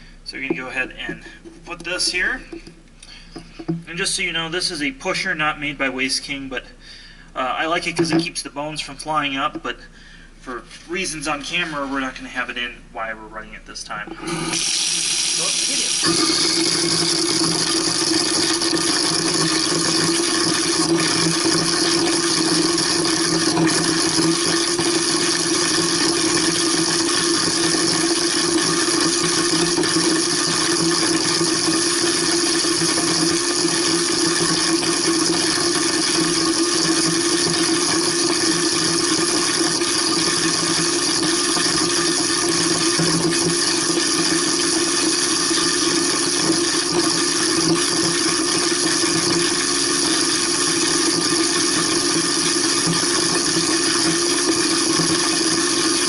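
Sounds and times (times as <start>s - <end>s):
tap water pouring: 0.4s - 3.9s, 14.1s - 56.0s
garbage disposal grinding bone: 14.0s - 56.0s.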